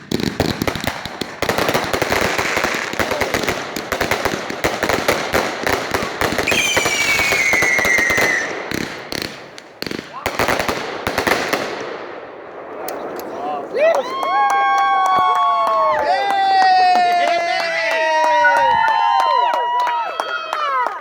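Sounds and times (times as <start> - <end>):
fireworks crackling: 0.0 - 19.8
firework whistle falling in pitch: 6.5 - 8.5.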